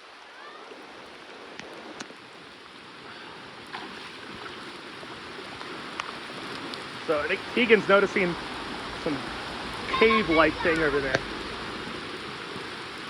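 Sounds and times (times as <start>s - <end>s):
creek water rushing: 0.0s - 13.0s
rain falling: 0.0s - 13.0s
faint drips or splashes: 5.4s - 12.8s.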